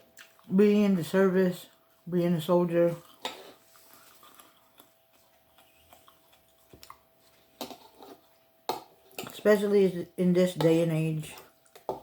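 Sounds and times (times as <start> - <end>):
person chewing: 0.0 - 0.6, 2.8 - 9.4, 11.4 - 12.0
faint steady hum: 0.0 - 12.0.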